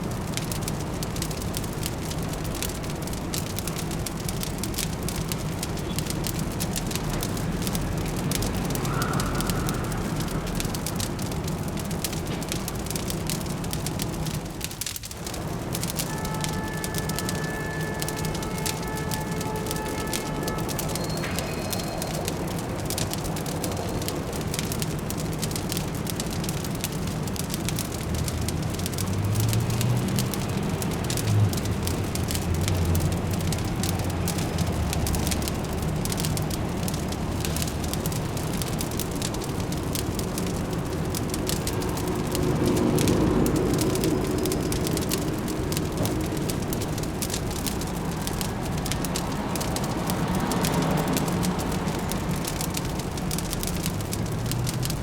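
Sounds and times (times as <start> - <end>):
fireplace crackling and popping: 0.0 - 55.0
low city hum: 0.0 - 55.0.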